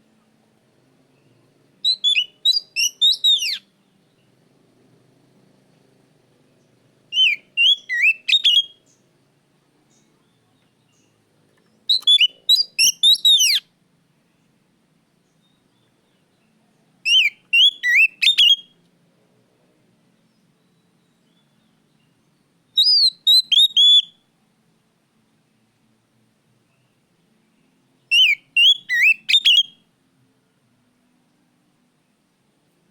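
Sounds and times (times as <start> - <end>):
magpie-robin singing: 1.2 - 4.4, 7.1 - 9.0, 9.9 - 13.7, 15.2 - 18.7, 20.3 - 24.2, 27.6 - 29.8.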